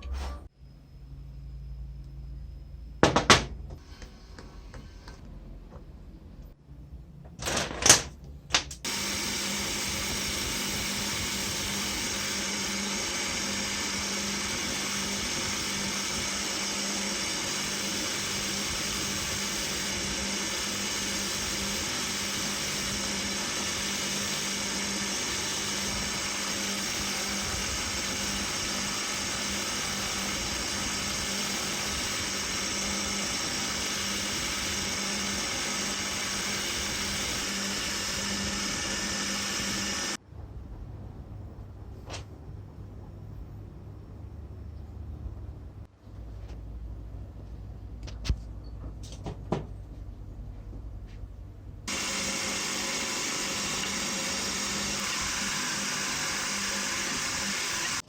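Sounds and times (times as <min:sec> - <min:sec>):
electric power tool running: 0:08.9 - 0:40.2, 0:51.9 - 0:58.0.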